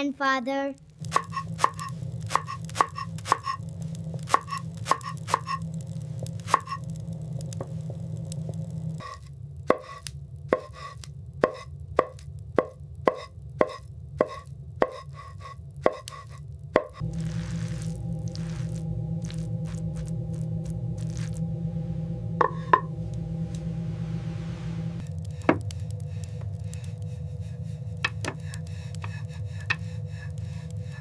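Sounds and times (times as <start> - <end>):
low rumble: 0.8 - 31.0
blade chopping on wood: 1.1 - 3.6.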